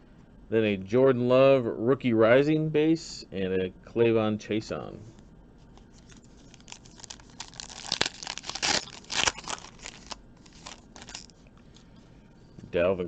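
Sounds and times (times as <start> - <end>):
plastic wrapper tearing and crinkling: 5.8 - 11.4.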